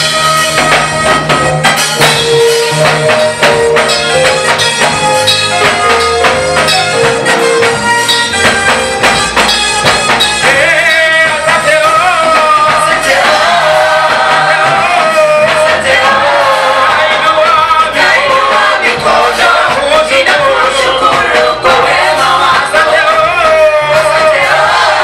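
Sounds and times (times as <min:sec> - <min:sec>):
band with drums playing: 0:00.0 - 0:25.0
voices singing: 0:10.4 - 0:25.0.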